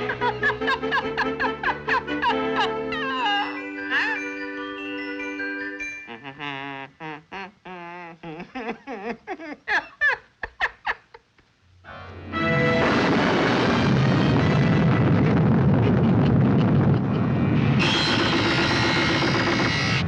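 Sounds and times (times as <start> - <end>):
thunder rumble: 12.7 - 19.5.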